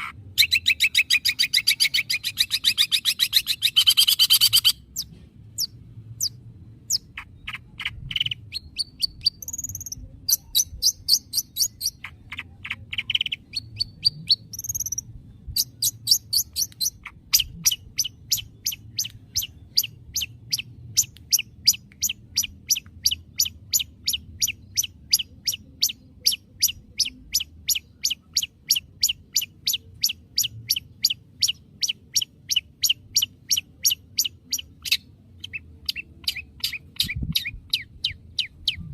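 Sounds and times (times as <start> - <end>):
bird chirping and whistling: 0.0 - 38.9.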